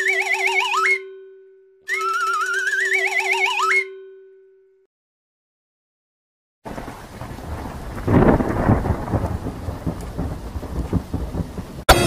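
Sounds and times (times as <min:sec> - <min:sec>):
rolling thunder: 0:06.7 - 0:12.0
steady rainfall: 0:06.7 - 0:12.0.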